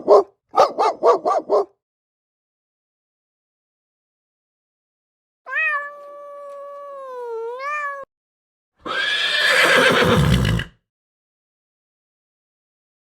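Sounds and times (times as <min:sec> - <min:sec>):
harsh rough animal call: 0:08.8 - 0:10.7.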